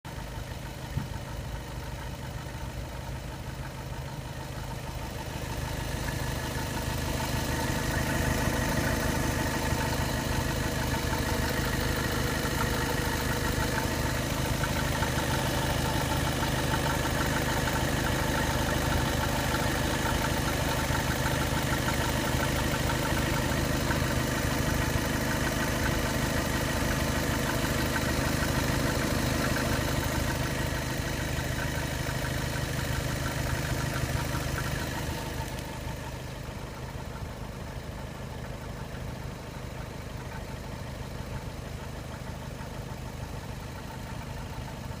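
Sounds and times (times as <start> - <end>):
diesel engine idling: 0.1 - 45.0.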